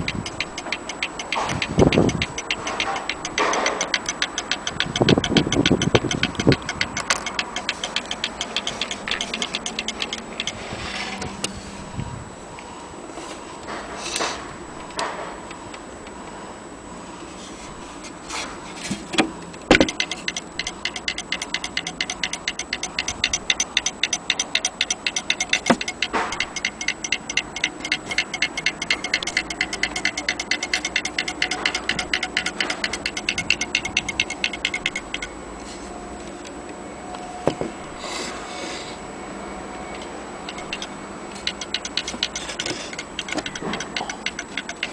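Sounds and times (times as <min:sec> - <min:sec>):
clock mechanism clicking: 0:00.0 - 0:11.4, 0:19.2 - 0:35.3, 0:40.5 - 0:44.9.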